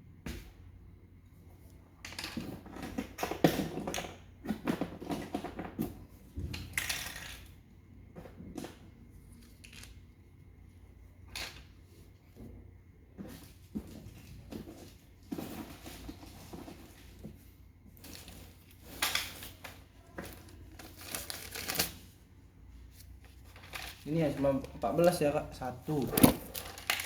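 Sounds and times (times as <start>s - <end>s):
packaging crinkling and rustling: 18.0s - 22.2s, 22.9s - 27.0s.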